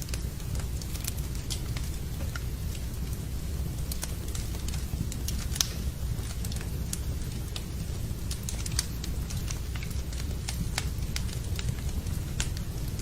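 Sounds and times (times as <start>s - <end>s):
rain: 0.0s - 13.0s
wood fire crackling: 0.0s - 13.0s.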